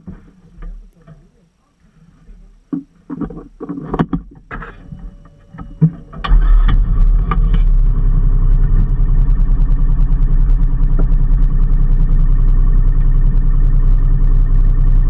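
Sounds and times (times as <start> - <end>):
engine starting and idling: 6.0 - 15.0.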